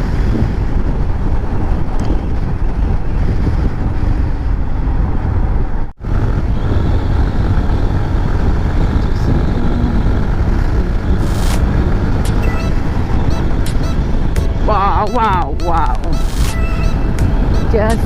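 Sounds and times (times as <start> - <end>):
motorcycle engine and road noise: 0.0 - 18.0
wind buffeting microphone: 0.0 - 18.0.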